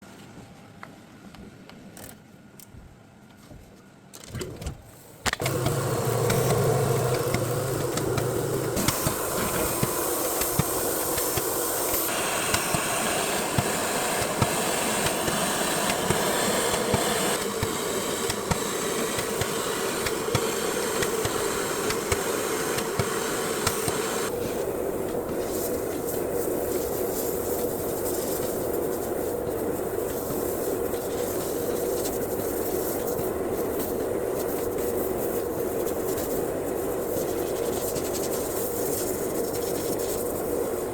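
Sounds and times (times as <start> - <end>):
motor hum: 5.3 - 28.0
compressed air jet hissing: 5.3 - 40.9.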